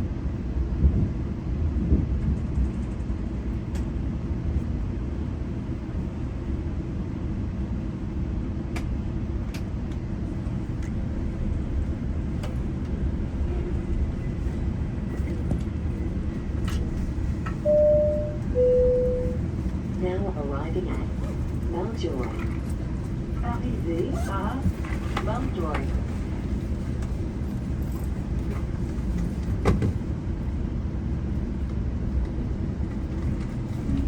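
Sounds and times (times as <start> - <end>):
train rumbling: 0.0 - 34.0
chime note: 17.7 - 19.4.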